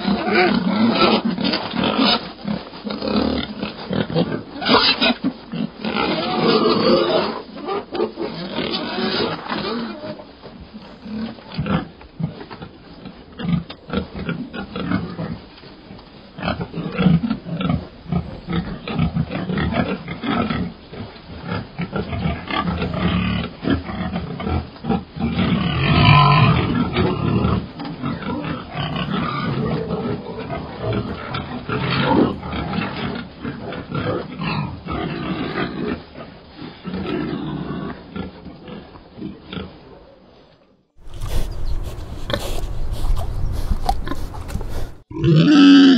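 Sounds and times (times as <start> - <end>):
pigs grunting: 0.0 - 40.0, 41.0 - 45.9
pig high-pitched call: 4.6 - 5.2, 5.9 - 10.2.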